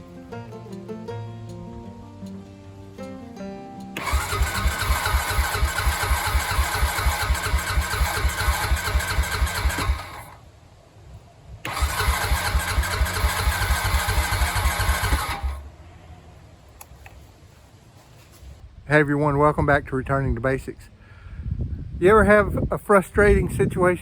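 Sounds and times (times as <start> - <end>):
engine cranking without starting: 4.0 - 10.4, 11.6 - 15.6.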